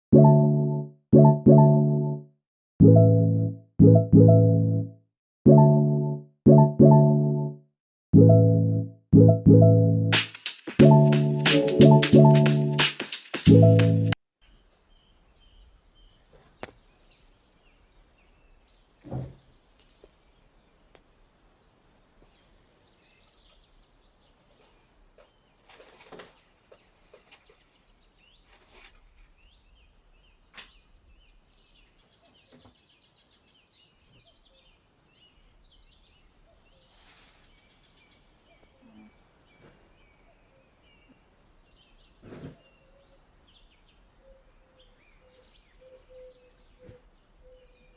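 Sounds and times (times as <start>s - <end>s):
faint birdsong chirps: 14.4s - 47.9s.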